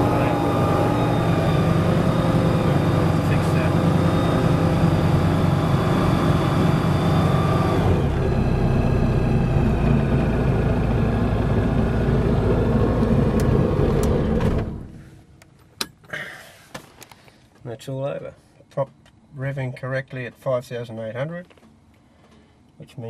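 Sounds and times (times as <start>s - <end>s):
aircraft engine and propeller: 0.0s - 15.0s.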